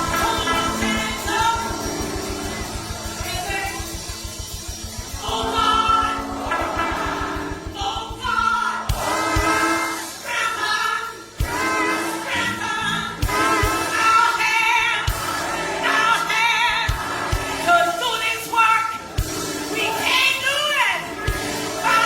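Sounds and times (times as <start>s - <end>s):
low beats: 0.0s - 10.6s, 11.3s - 18.2s
gospel choir singing: 0.0s - 22.0s.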